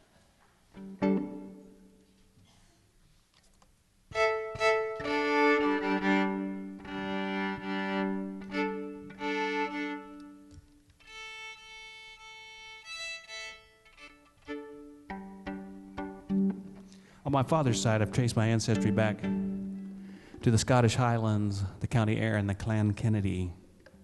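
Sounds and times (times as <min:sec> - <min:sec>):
fiddle bowed in held notes: 0:04.1 - 0:16.7, 0:17.5 - 0:20.1.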